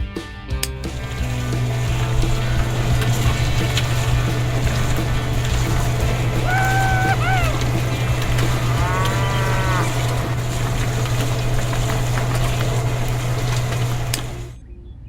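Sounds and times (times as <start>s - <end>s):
loud low hum: 0.9s - 14.7s
cow mooing: 5.5s - 10.9s.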